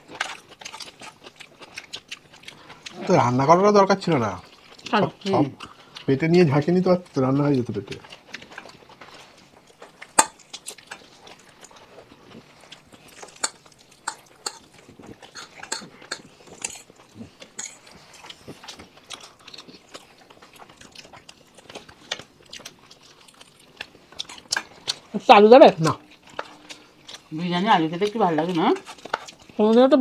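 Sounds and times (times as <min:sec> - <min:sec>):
chewing smacks: 0:00.0 - 0:03.4, 0:04.0 - 0:30.0
cutlery clicking on plates: 0:13.3 - 0:14.7, 0:15.3 - 0:16.9.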